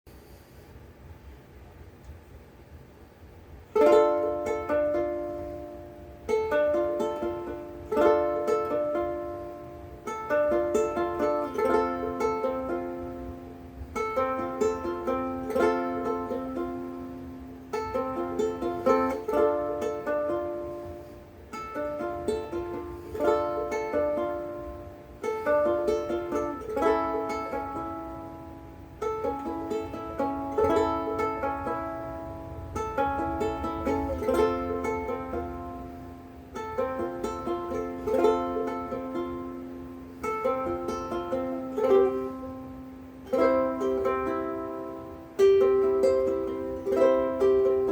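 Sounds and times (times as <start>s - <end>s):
ukulele fingerpicked: 3.6s - 47.9s.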